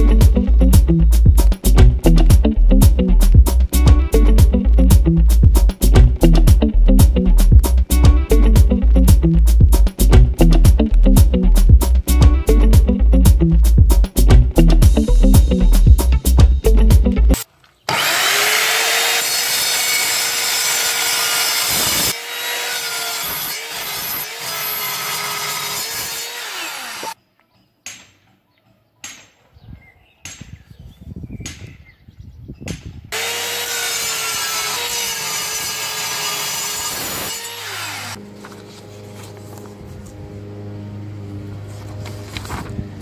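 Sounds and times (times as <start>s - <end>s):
mitre saw cutting metal: 17.9s - 27.2s, 33.1s - 38.2s.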